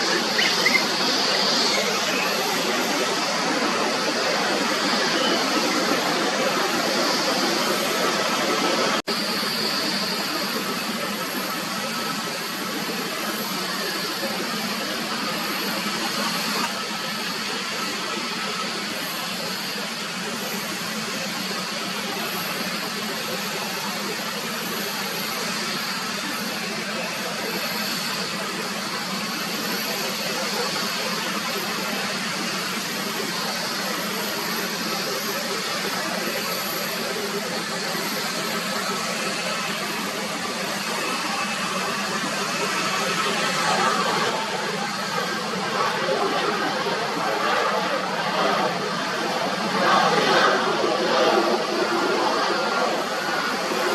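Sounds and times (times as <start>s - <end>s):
jet engines rushing: 0.0s - 53.9s.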